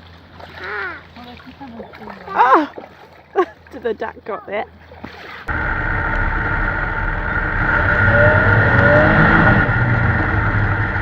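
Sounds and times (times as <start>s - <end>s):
engine running: 5.5s - 11.0s.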